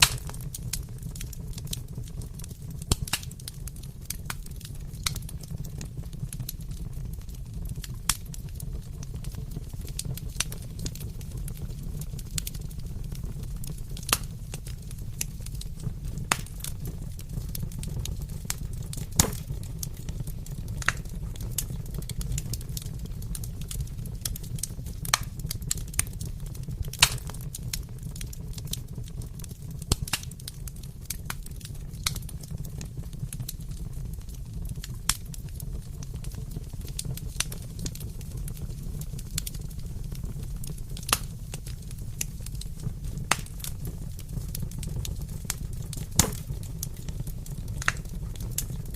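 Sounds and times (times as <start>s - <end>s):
wood fire crackling: 0.0s - 48.9s.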